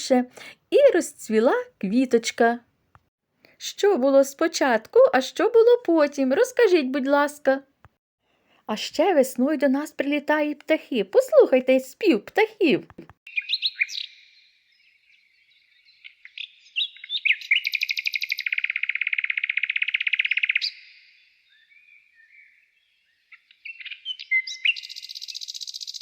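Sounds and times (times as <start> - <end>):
songbirds chirping and trilling: 13.3 - 26.0.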